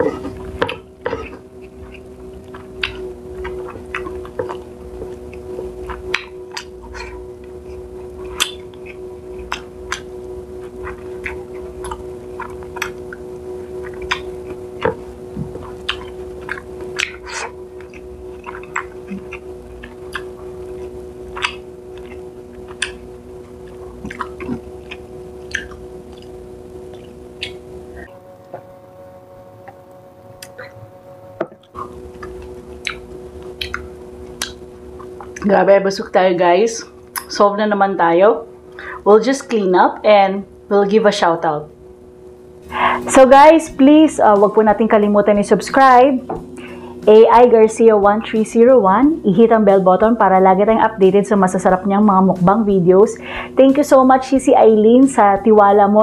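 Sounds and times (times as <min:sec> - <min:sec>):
steady low hum: 0:00.0 - 0:56.0
wet chewing mouth clicks: 0:01.0 - 0:05.2, 0:05.8 - 0:13.2, 0:13.8 - 0:14.9, 0:15.6 - 0:23.0, 0:23.6 - 0:26.3, 0:26.9 - 0:27.6, 0:31.7 - 0:35.4.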